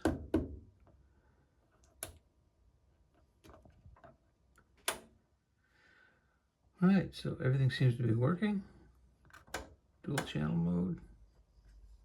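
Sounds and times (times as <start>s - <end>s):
rotary knobs and switches clicking: 4.6s - 5.1s.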